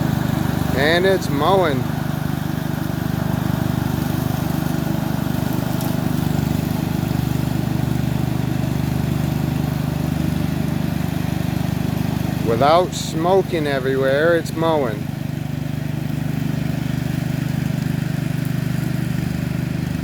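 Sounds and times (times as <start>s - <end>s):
riding lawn mower engine running: 0.0s - 20.0s.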